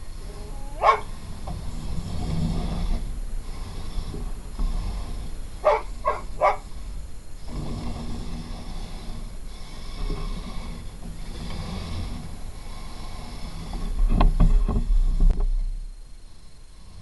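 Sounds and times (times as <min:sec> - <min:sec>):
dog barking: 0:00.7 - 0:01.1, 0:05.6 - 0:06.6.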